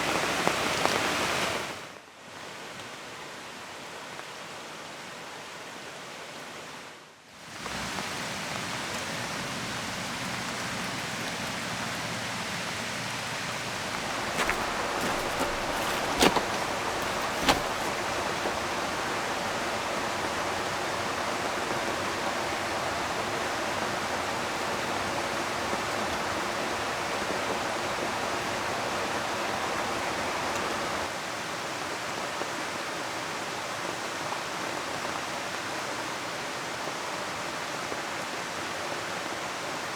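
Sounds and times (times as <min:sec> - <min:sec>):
rain falling: 0:07.5 - 0:21.2
river rushing: 0:14.0 - 0:19.6.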